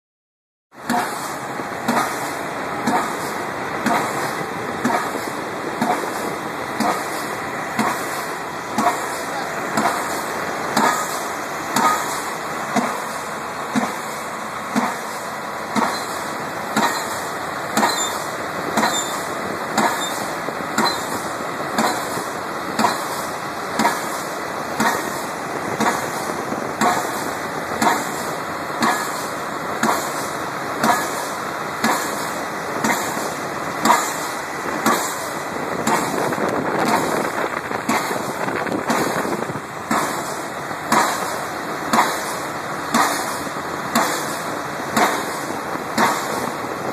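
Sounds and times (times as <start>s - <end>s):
pile-driving hammer bangs: 0.8s - 6.2s, 9.8s - 13.1s, 27.8s - 46.5s
machinery noise: 0.8s - 46.9s.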